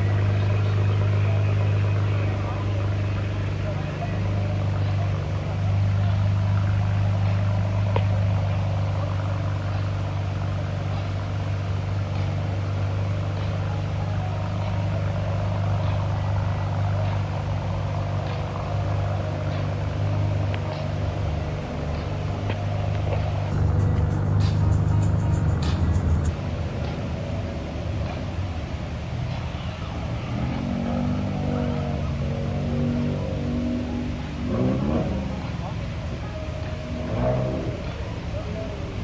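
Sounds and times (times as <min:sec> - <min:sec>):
car engine idling: 0:00.0 - 0:39.0
faint light ticks: 0:12.1 - 0:12.4, 0:18.2 - 0:18.5.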